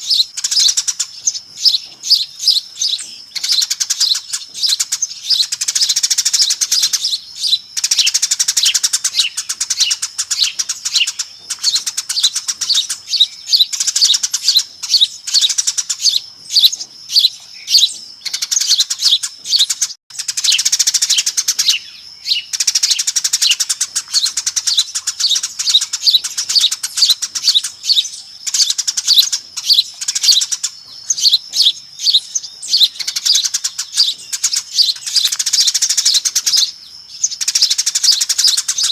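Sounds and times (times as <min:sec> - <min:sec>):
flock of sparrows chirping: 0:00.0 - 0:38.9.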